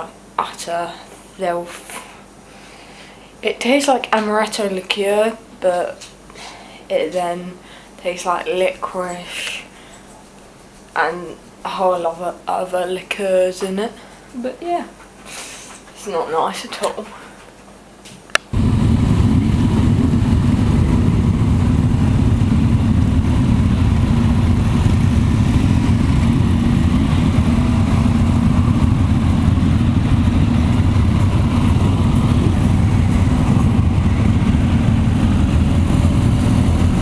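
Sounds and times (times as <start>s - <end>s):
helicopter rotor rumbling: 18.5s - 37.0s.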